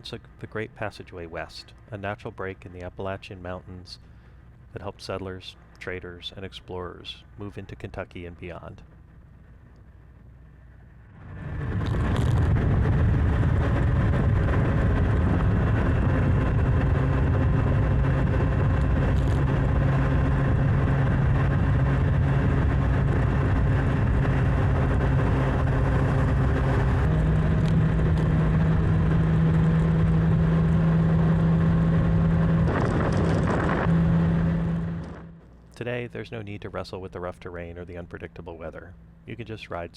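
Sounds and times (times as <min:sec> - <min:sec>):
road and wind noise: 0:00.0 - 0:39.9
motorcycle engine running: 0:11.2 - 0:35.5.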